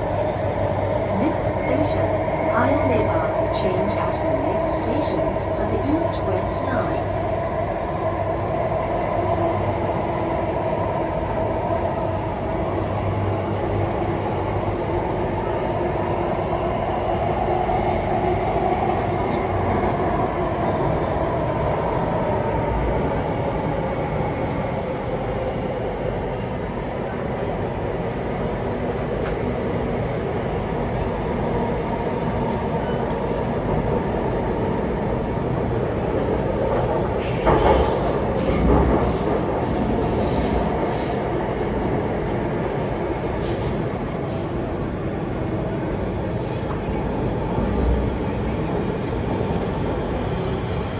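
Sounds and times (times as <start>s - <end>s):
train drive hum: 0.0s - 50.9s
train running rumble: 16.6s - 50.9s.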